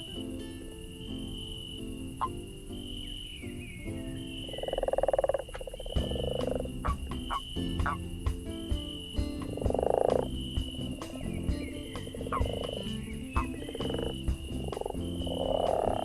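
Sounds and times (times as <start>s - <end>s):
frogs croaking: 0.0s - 16.0s
campfire crackling: 5.4s - 16.0s.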